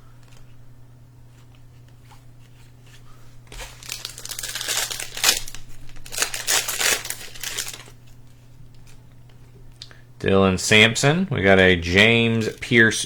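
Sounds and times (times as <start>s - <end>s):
wrapper crinkling and tearing: 3.5s - 9.0s, 12.4s - 13.0s.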